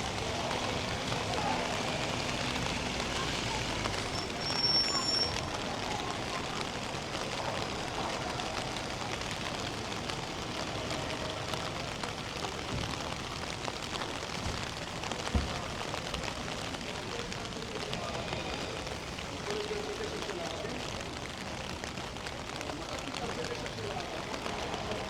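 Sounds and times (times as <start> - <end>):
rain spattering on ground: 0.0 - 25.0.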